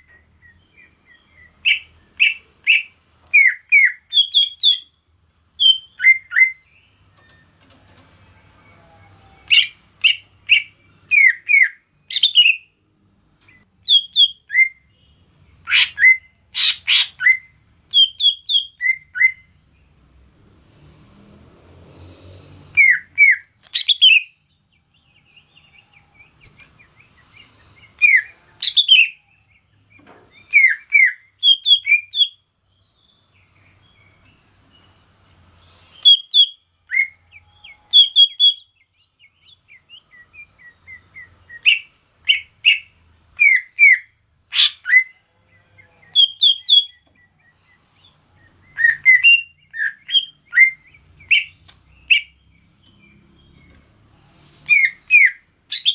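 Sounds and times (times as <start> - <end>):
bird whistling song: 0.0 - 5.0, 5.6 - 7.5, 9.4 - 12.7, 13.5 - 14.9, 15.6 - 19.5, 22.7 - 24.4, 25.2 - 32.4, 35.6 - 45.2, 45.8 - 53.8, 54.6 - 55.9.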